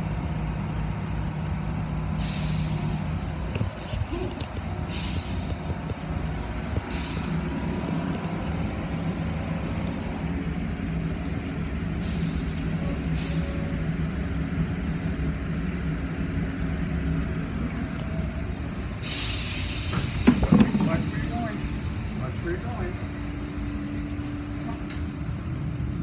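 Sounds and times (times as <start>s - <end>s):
heavy vehicle engine idling: 0.0s - 26.0s
hissing air bursts: 2.2s - 3.3s, 4.8s - 5.7s, 12.0s - 13.5s, 18.9s - 22.2s.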